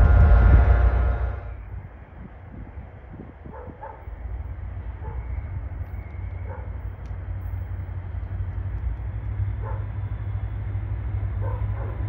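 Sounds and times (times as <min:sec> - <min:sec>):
train rumbling: 0:00.0 - 0:12.0
dog barking: 0:03.5 - 0:04.1, 0:05.0 - 0:05.4, 0:06.4 - 0:06.8, 0:09.6 - 0:10.0, 0:11.4 - 0:12.0.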